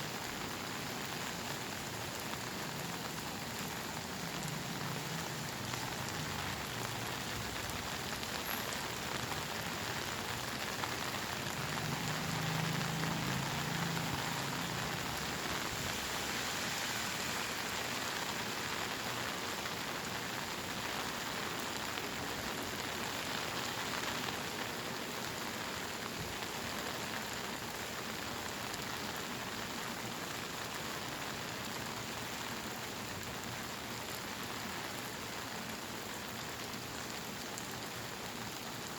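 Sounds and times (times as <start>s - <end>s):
heavy rain pattering: 0.0s - 38.9s.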